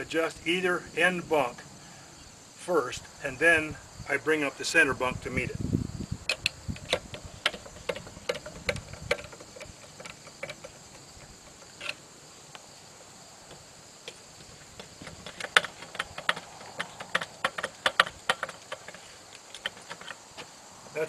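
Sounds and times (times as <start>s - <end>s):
metal clicks and knocks: 6.3s - 12.0s, 13.5s - 20.5s.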